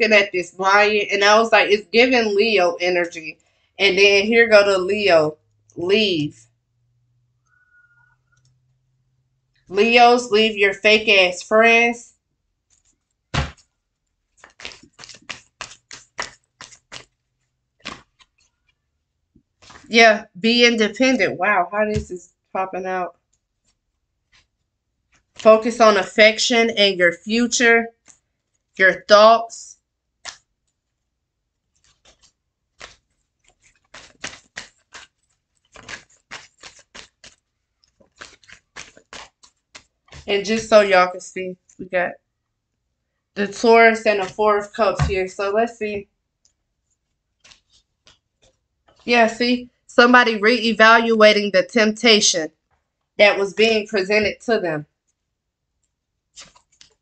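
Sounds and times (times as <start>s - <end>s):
cards slapping while shuffled: 12.8s - 13.7s, 14.3s - 18.8s, 19.5s - 19.9s, 30.2s - 30.5s, 31.7s - 40.8s, 47.4s - 49.1s, 56.3s - 57.0s
cards thumping: 13.3s - 13.7s, 14.4s - 17.2s, 17.8s - 18.8s, 31.8s - 40.8s, 47.4s - 49.0s, 56.4s - 57.0s.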